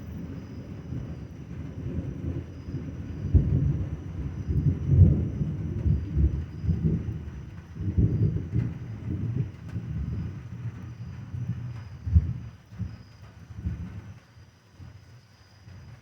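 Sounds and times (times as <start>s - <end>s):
rolling thunder rumble: 0.0s - 14.2s.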